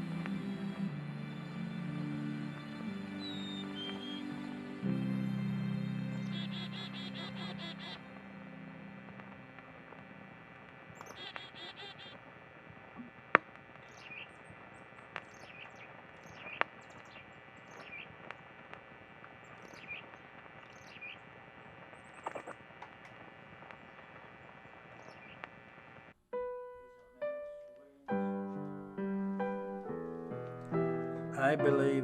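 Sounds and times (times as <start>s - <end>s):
songbirds chirping: 0.0s - 26.2s
sharp clicks: 9.1s - 26.1s.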